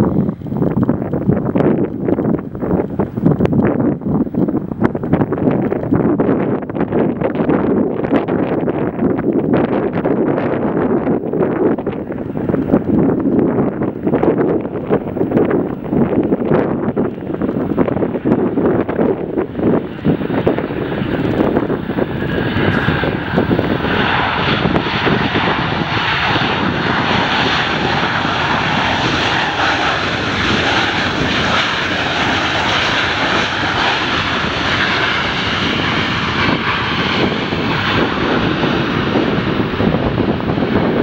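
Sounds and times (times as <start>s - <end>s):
jet engines rushing: 0.0s - 41.0s.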